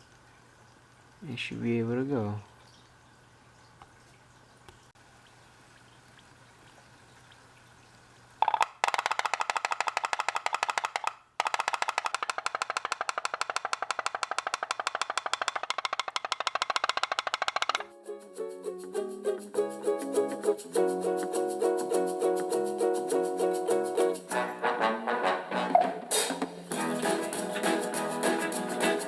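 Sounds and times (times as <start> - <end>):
steam engine rapid popping: 8.4 - 17.8
plucked string music: 17.8 - 29.0.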